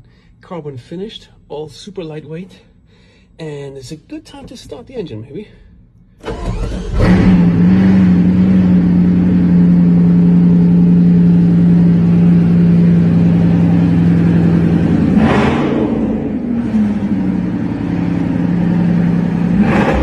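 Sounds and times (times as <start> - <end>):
car engine at high idle: 6.5 - 20.0.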